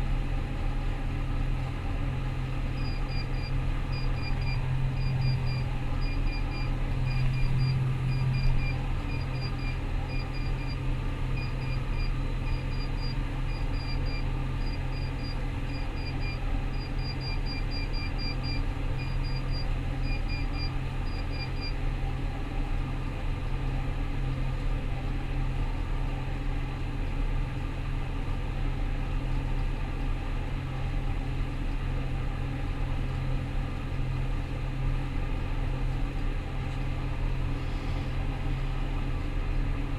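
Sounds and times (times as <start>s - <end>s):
combine harvester droning: 0.0s - 39.9s
electronic warning beep: 2.8s - 10.8s, 11.4s - 21.8s.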